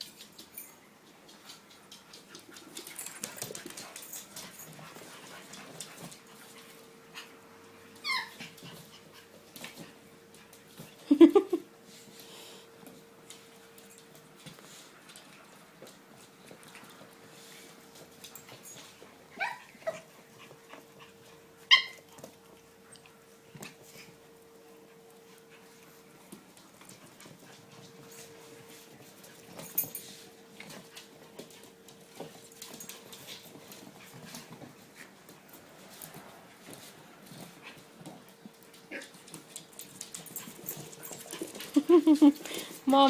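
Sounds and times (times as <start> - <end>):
puppies yipping and whimpering: 8.0 - 8.6, 19.3 - 20.1, 21.6 - 22.1.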